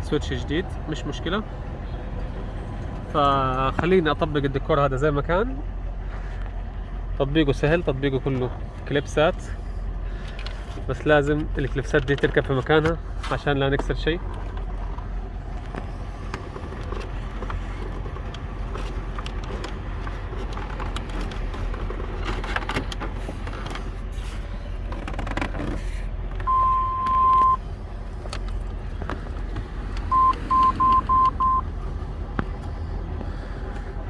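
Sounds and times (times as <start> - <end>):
electronic beep: 26.5 - 27.6, 30.1 - 31.6
short beeps: 26.5 - 27.6, 30.1 - 31.6.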